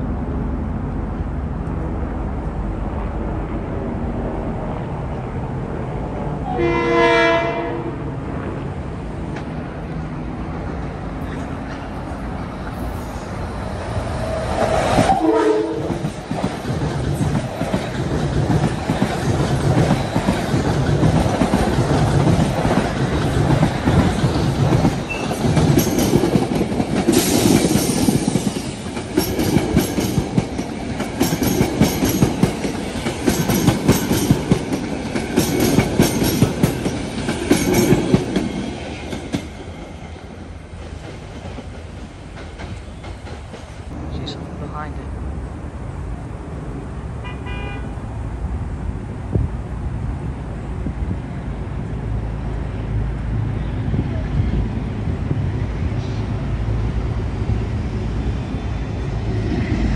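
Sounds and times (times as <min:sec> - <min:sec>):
train rumbling past: 0:00.0 - 0:59.9
train horn: 0:06.4 - 0:08.1, 0:14.7 - 0:16.0, 0:47.2 - 0:48.0
wheels clacking over rail joints: 0:15.8 - 0:44.0.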